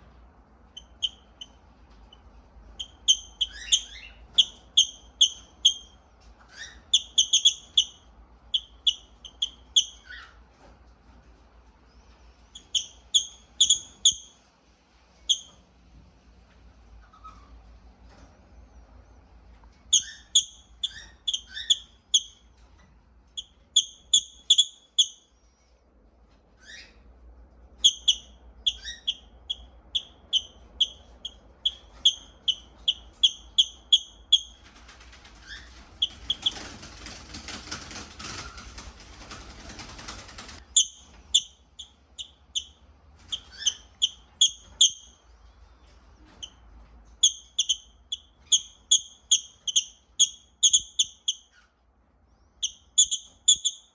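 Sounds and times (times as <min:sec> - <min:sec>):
lovebird chirping: 0:00.7 - 0:10.4, 0:12.0 - 0:14.4, 0:15.2 - 0:15.6, 0:19.9 - 0:22.5, 0:23.4 - 0:25.3, 0:27.8 - 0:34.6, 0:35.4 - 0:36.8, 0:40.6 - 0:45.5, 0:47.2 - 0:51.7, 0:52.3 - 0:53.9.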